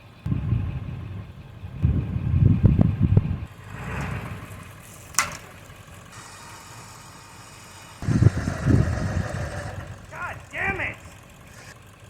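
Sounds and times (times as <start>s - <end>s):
engine rumbling: 0.0s - 12.0s
sharp crack: 3.5s - 8.2s.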